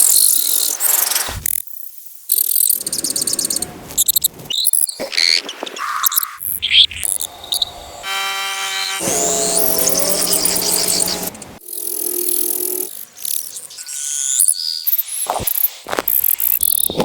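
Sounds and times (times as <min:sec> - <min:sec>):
high trill: 0:09.0 - 0:13.0.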